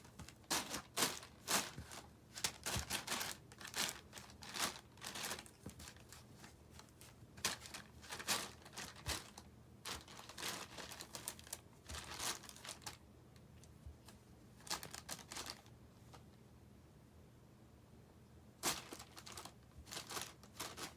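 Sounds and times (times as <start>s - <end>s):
plastic packaging crinkling: 0.1s - 13.0s, 14.6s - 15.7s, 18.6s - 20.9s.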